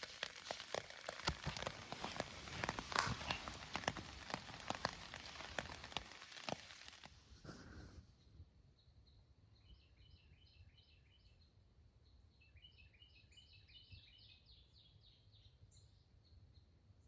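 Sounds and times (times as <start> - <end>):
rain falling: 0.0 - 7.1
raindrops clicking: 0.0 - 7.1.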